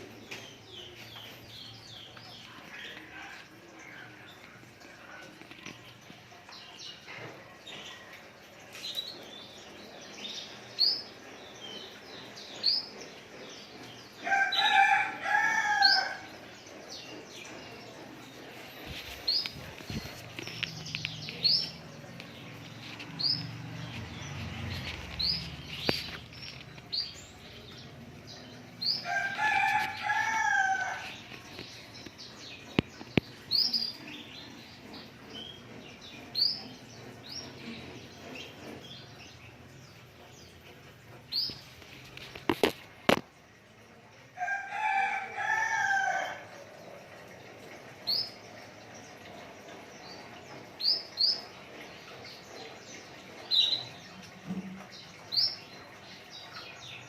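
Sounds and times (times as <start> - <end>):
rooster crowing: 14.2 - 16.3, 29.0 - 31.1.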